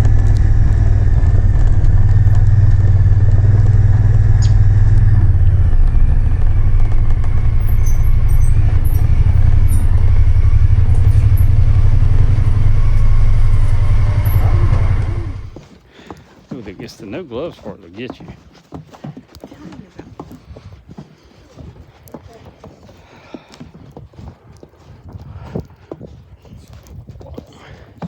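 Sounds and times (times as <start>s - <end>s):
vehicle engine droning while driving: 0.0s - 15.6s.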